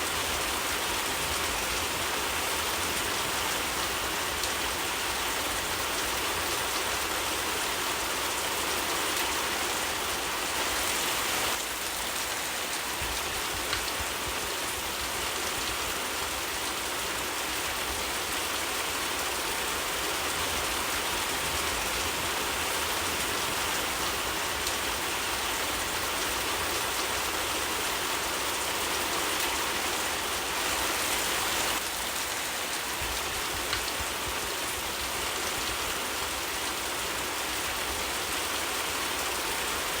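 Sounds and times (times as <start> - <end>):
steady rain falling: 0.0 - 40.0
faint fire crackles: 9.1 - 28.7, 29.4 - 38.7.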